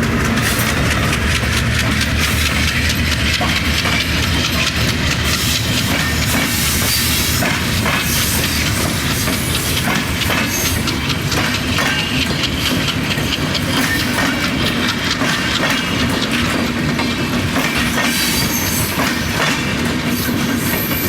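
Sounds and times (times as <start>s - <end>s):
train rushing noise: 0.0s - 21.0s
wheels clicking over rails: 0.0s - 21.0s.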